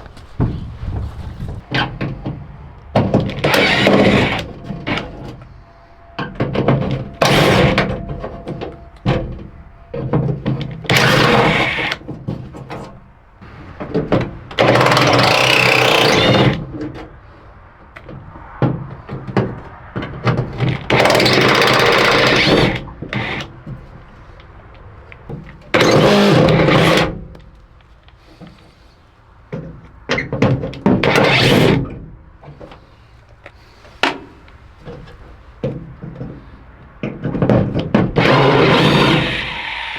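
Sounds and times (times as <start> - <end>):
power tool bursts: 10.9 - 12.0, 14.6 - 16.6, 20.9 - 23.5, 38.2 - 39.9.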